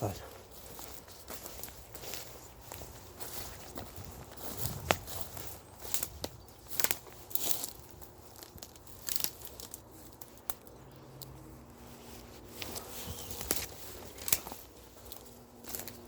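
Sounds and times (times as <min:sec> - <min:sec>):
undergrowth rustling and crackling: 0:00.0 - 0:16.0
sharp twig snaps: 0:13.4 - 0:14.6.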